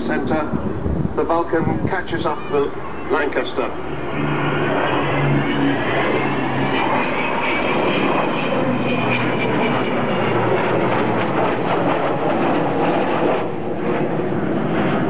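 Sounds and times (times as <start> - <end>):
aircraft engines rushing: 0.0 - 15.0
faint high whine: 1.2 - 11.9.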